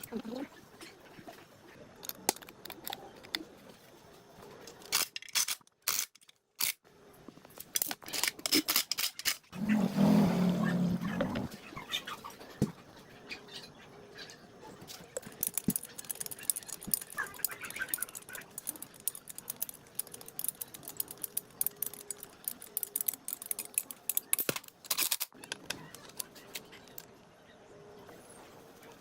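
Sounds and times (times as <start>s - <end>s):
small sharp clicks and scrapes: 2.0s - 3.8s, 4.6s - 6.9s, 7.5s - 11.5s, 14.8s - 27.1s
short loud rasp: 9.6s - 11.5s.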